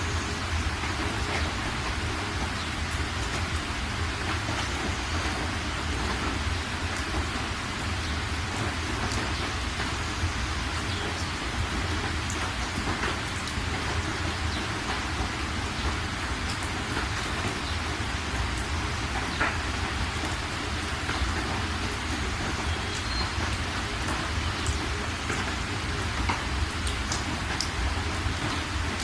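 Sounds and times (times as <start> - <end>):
heavy rain on a metal roof: 0.0 - 29.0
sharp drip ticks: 22.7 - 25.6.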